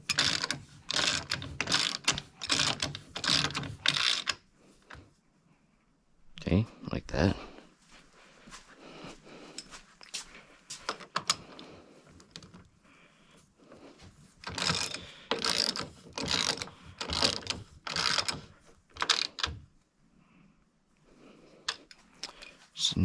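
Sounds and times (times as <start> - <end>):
ratcheting tool strokes: 0.0 - 4.4, 14.4 - 19.6.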